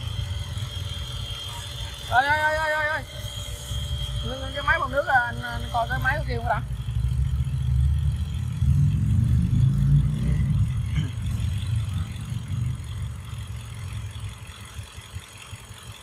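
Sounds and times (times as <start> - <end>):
car engine idling: 4.0 - 16.0.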